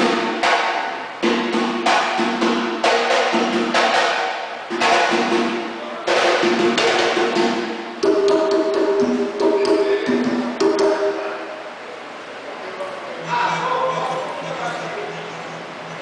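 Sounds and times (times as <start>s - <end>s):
drum and cymbal hits: 0.0s - 11.5s
live band playing: 6.3s - 11.5s.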